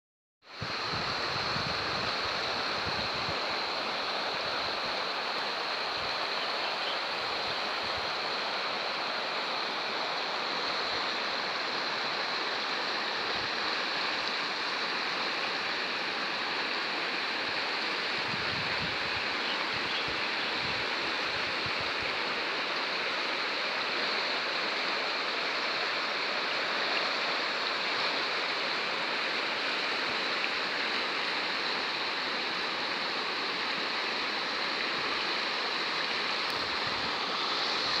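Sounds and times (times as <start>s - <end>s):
river water rushing: 0.5s - 38.0s
wind rumble on microphone: 0.6s - 3.5s, 18.2s - 22.1s.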